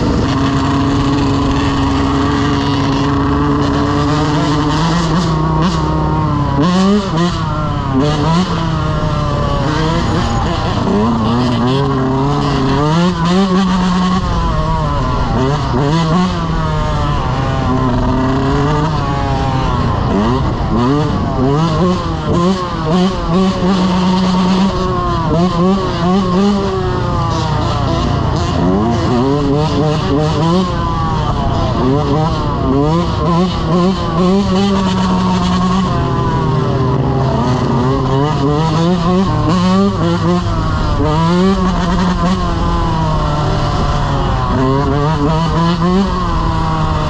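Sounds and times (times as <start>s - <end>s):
dirt bike engines revving: 0.0s - 47.0s.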